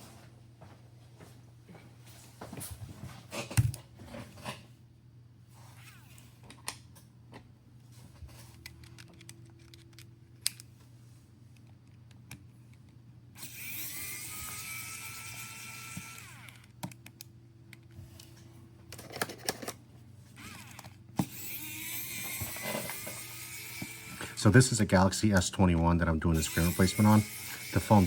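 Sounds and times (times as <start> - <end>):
small power tool motor whining: 13.4 - 16.8, 20.4 - 24.4, 26.4 - 28.0.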